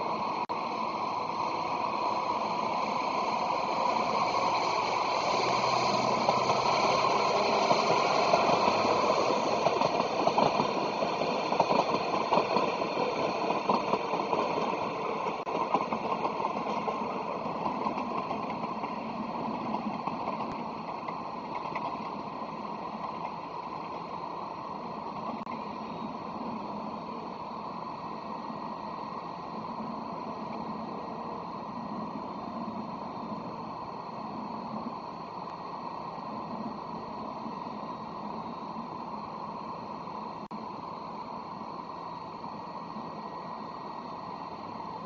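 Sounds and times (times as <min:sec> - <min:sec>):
train clanks: 0:00.0 - 0:26.6
train rumbling past: 0:00.0 - 0:45.0.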